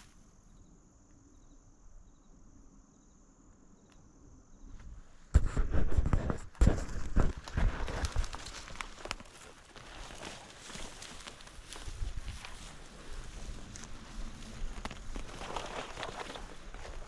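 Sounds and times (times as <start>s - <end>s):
faint chirps: 0.0s - 4.8s
footsteps crunching through dry brush: 5.4s - 17.0s.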